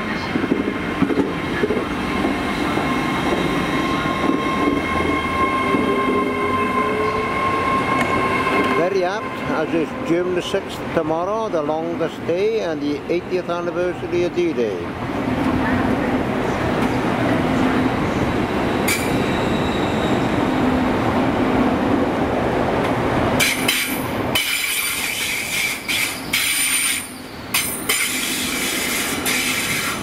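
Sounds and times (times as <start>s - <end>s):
train rolling rumble: 0.0s - 30.0s
wheel squeal: 18.7s - 20.6s, 23.4s - 30.0s.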